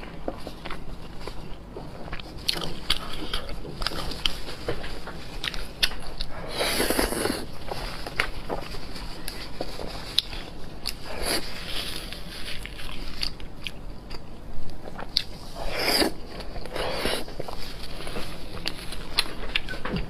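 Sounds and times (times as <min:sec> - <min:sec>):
crunchy biting and chewing: 0:10.0 - 0:20.0.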